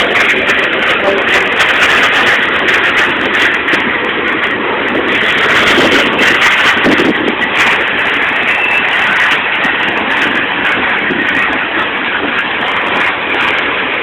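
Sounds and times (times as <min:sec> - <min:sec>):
freight train wheels clattering: 0:00.0 - 0:14.0.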